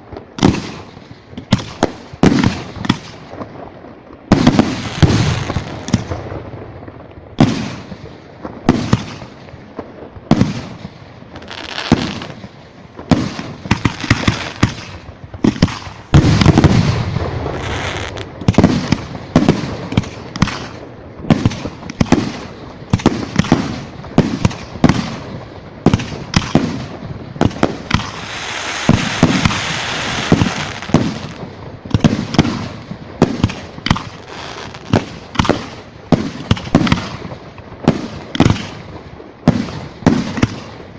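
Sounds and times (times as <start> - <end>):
dense firework crackling: 0.0 - 40.9
firework shells bursting: 25.9 - 32.7.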